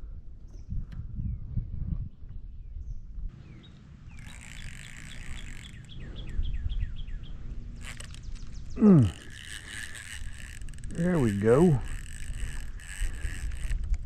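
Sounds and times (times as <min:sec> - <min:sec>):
fishing reel cranking: 0:04.1 - 0:06.3, 0:07.7 - 0:14.0.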